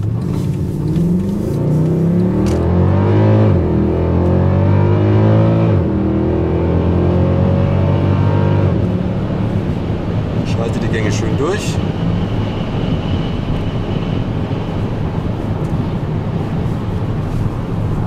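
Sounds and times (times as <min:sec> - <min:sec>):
car engine accelerating hard: 0:00.0 - 0:18.0.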